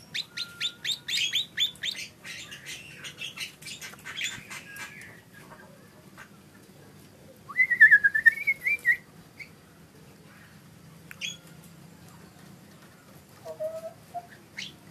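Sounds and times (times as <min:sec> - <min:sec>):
bird whistled warbling song: 0:00.0 - 0:05.2, 0:07.5 - 0:09.5, 0:11.2 - 0:11.4, 0:13.5 - 0:14.8.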